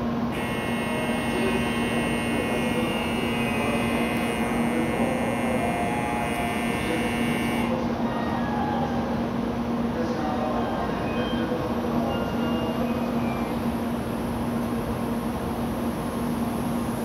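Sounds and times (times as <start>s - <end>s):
train electrical hum: 0.0s - 17.0s
high-pitched electronic tone: 0.4s - 7.7s.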